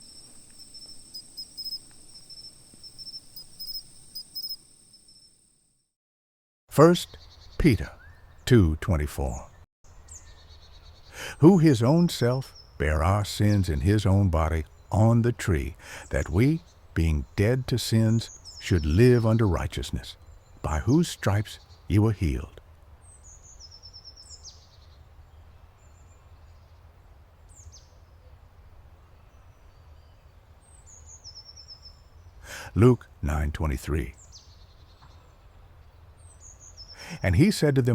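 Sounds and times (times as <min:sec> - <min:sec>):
birds calling: 0:00.0 - 0:04.6
crickets chirping: 0:00.0 - 0:05.8.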